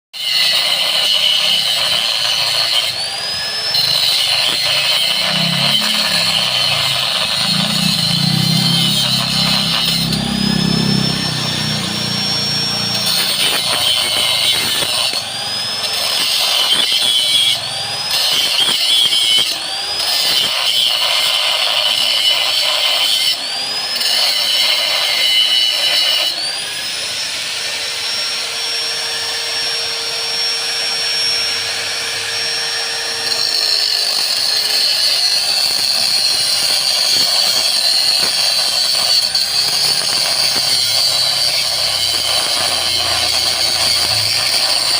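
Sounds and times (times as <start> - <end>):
chopper machine whining: 0.4 - 44.9.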